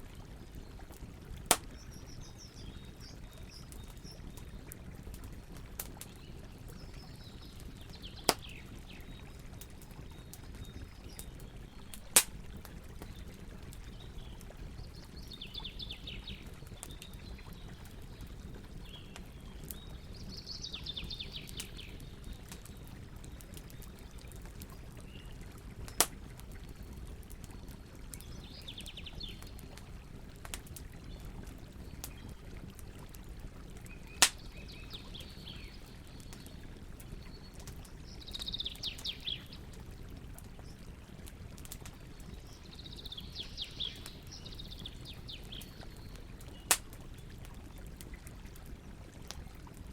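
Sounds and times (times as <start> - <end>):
campfire crackling: 0.0 - 49.9
loud sharp pops: 1.5 - 1.8, 46.7 - 46.9.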